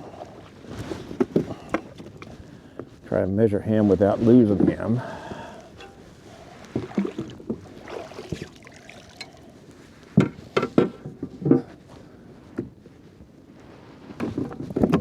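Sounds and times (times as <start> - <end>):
knocks and thumps against kayak: 0.7 - 2.4, 6.7 - 8.5, 10.1 - 11.8, 14.2 - 15.0.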